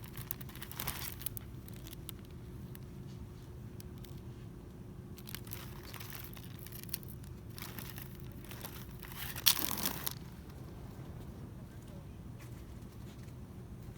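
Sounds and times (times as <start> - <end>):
plastic crinkling: 0.0 - 2.8, 5.2 - 10.9
low hum: 3.6 - 13.9.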